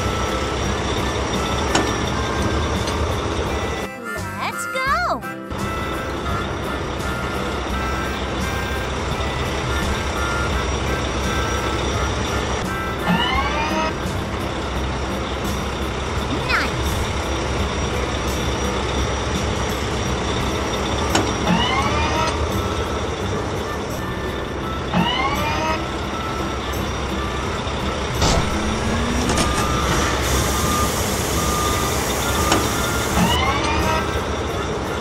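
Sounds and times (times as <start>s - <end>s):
cartoon engine running: 0.0s - 35.0s
short rising tones: 20.6s - 34.9s.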